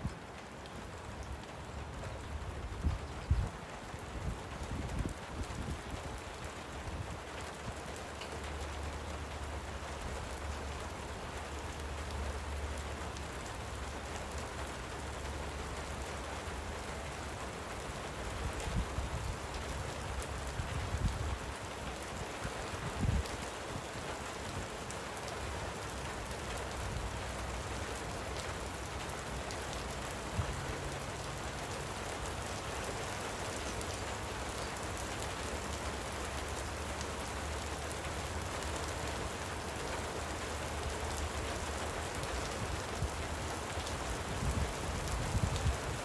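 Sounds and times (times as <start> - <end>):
light rain pattering: 0.0 - 46.0.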